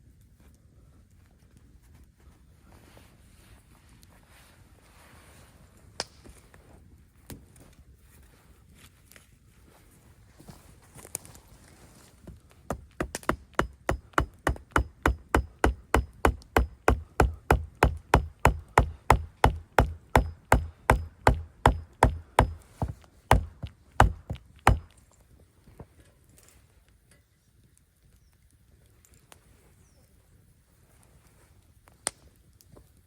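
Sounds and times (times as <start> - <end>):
tool striking wood: 12.7 - 25.0.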